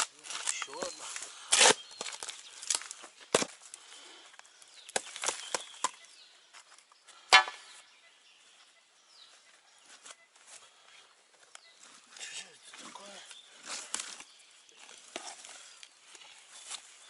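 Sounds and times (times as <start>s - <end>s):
sharp knocks: 7.3s - 7.6s.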